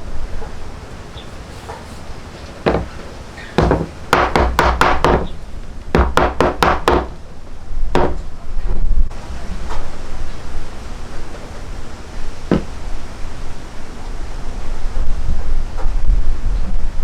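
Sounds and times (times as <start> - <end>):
wooden hammer knocking wood: 2.6 - 7.2, 8.0 - 8.2, 12.5 - 12.8.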